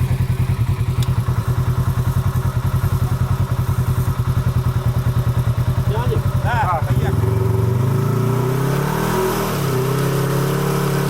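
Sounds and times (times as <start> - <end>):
vehicle engine idling: 0.0 - 8.6.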